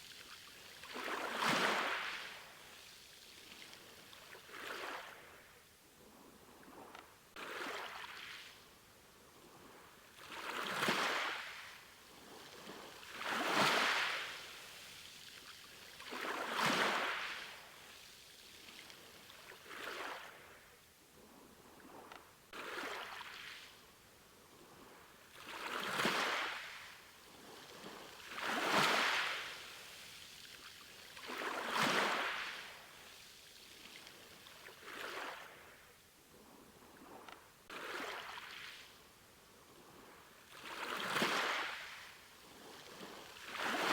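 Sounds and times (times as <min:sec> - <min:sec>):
small waves washing onto shore: 0:00.0 - 0:05.5, 0:09.7 - 0:20.7, 0:24.7 - 0:35.9, 0:36.9 - 0:43.9.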